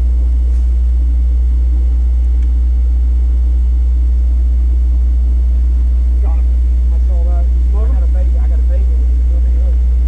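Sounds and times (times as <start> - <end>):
loud low rumble: 0.0 - 10.0.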